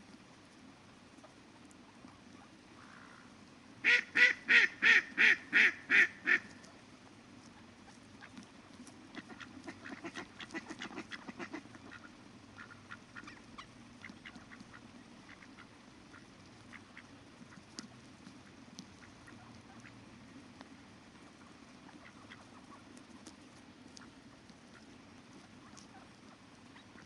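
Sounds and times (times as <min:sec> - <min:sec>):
faint river background: 0:00.0 - 0:27.0
duck quacking: 0:03.8 - 0:06.5, 0:09.2 - 0:17.7.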